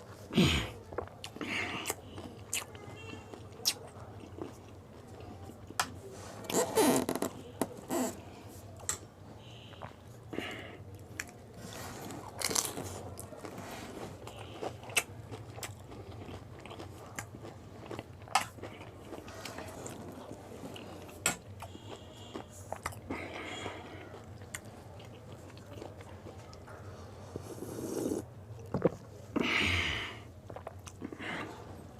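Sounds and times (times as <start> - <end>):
chewing: 0.0 - 6.6, 9.7 - 29.6, 30.4 - 31.9
crisp shells crunching when eaten: 12.0 - 13.6, 14.2 - 26.5.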